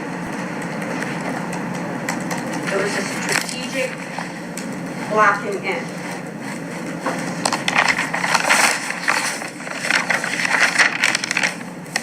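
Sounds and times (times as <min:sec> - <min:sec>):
crackling and rustling: 0:05.9 - 0:12.0.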